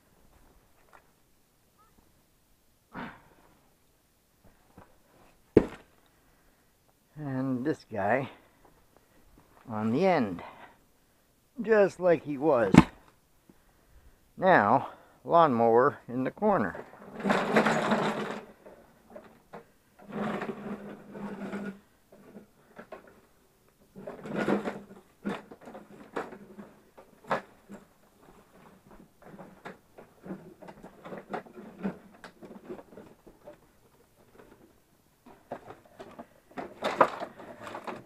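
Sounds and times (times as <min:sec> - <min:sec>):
equipment scraping and rattling: 0:16.6 - 0:23.2, 0:23.9 - 0:38.0.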